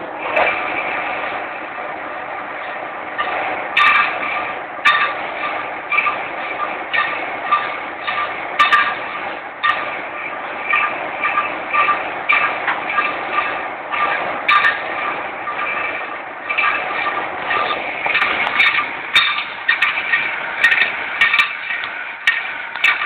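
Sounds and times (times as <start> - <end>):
metal lathe cutting: 0.0 - 23.0
sharp clicks and clinks: 15.5 - 23.0.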